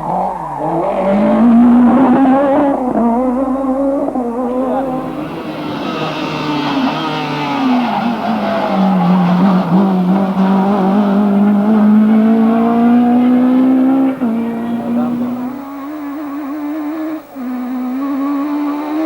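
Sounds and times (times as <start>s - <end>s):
car engine under load: 4.0s - 19.0s.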